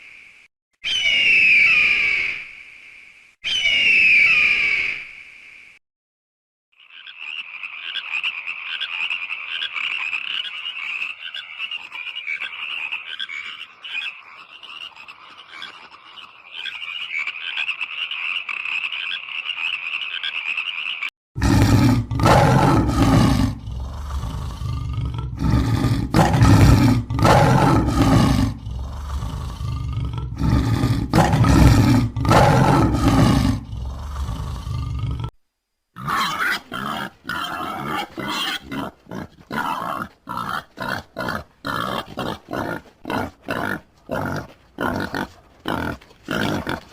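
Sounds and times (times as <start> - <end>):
high pulsing animal chorus: 21.4 - 35.3
loud deep animal calls: 21.4 - 35.3.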